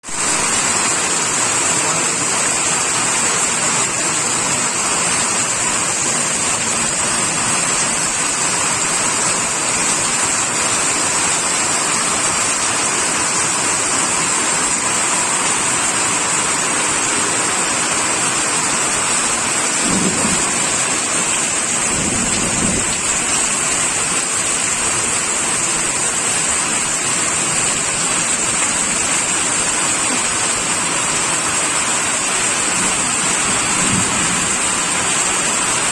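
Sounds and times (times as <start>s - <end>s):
steady rain hiss: 0.0s - 35.9s
thunder rumble: 19.6s - 23.5s, 32.7s - 35.8s.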